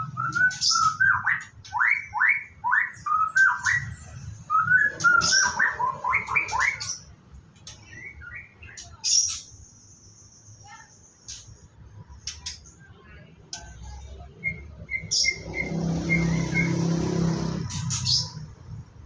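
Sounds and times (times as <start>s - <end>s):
bird singing whistled notes: 0.0s - 7.1s, 14.4s - 18.5s.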